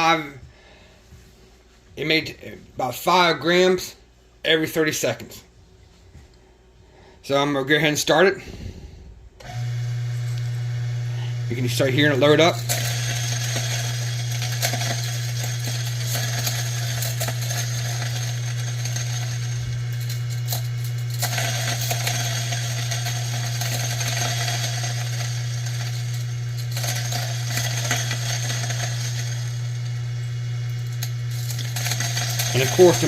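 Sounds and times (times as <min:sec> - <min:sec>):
coffee grinder motor humming: 0:08.4 - 0:33.0
coffee beans crunching: 0:10.3 - 0:33.0.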